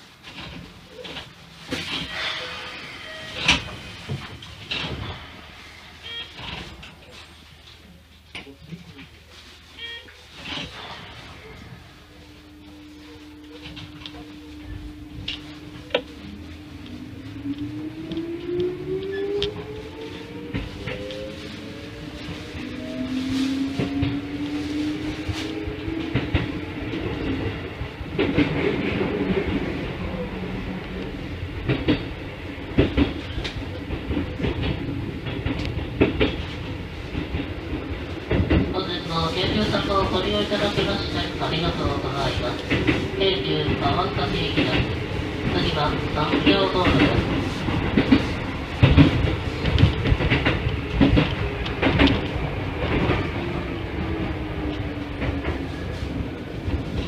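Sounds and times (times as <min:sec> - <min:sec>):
train rolling rumble: 0:00.0 - 0:57.0
train wheels clacking over rail joints: 0:32.7 - 0:38.7, 0:46.3 - 0:53.2.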